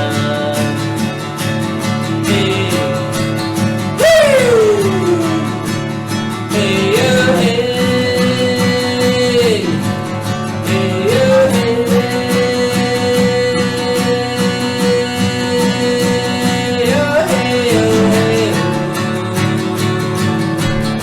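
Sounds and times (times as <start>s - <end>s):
acoustic guitar: 0.0s - 21.0s
person singing long notes: 4.0s - 10.0s, 10.7s - 20.4s.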